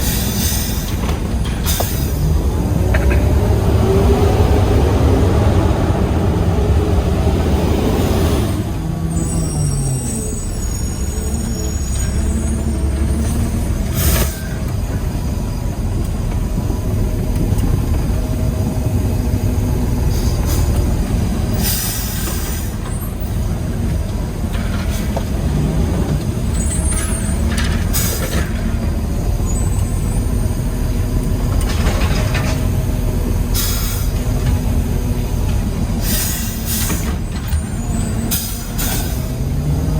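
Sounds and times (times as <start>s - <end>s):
air brake hisses: 0.0s - 1.0s, 21.5s - 23.1s, 33.6s - 34.2s, 36.0s - 39.3s
diesel truck engine running: 0.0s - 39.9s.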